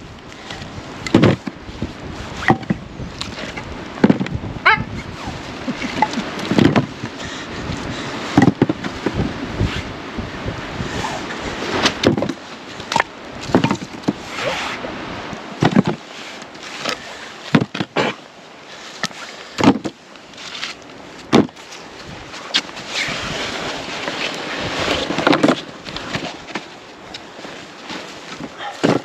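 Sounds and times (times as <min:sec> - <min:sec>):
knocks and thuds: 0:01.1 - 0:01.6, 0:04.0 - 0:04.4, 0:06.0 - 0:07.0, 0:08.4 - 0:09.2, 0:12.0 - 0:14.2, 0:15.6 - 0:16.0, 0:17.5 - 0:18.0, 0:19.6 - 0:20.0, 0:21.3 - 0:21.6.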